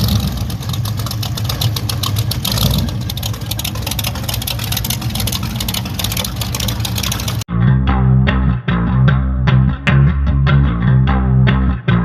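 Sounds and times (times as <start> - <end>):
car engine running: 0.0 - 7.5.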